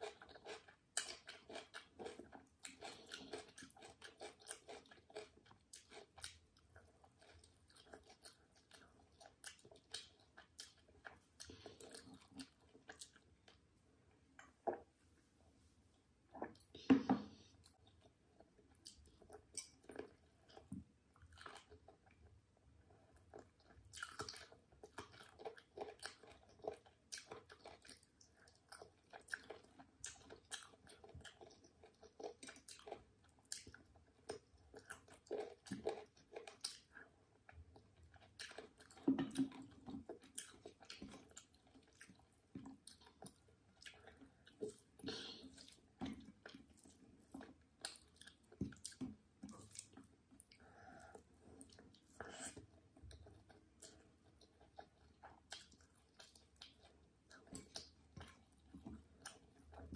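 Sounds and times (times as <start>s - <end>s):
person chewing food: 0.0s - 15.0s, 15.9s - 59.9s.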